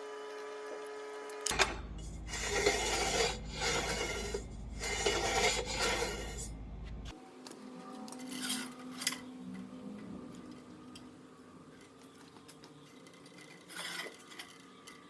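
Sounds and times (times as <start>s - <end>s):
rasping scrape on steel: 2.0s - 6.6s, 13.4s - 14.6s.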